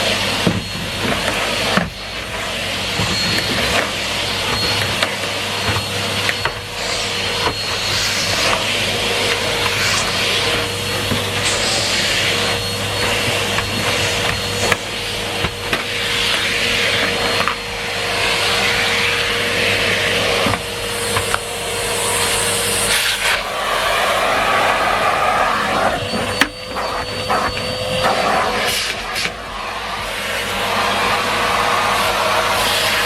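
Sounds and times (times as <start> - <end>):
vacuum cleaner motor whine: 0.0 - 33.0
vacuum suction hiss: 19.1 - 26.0.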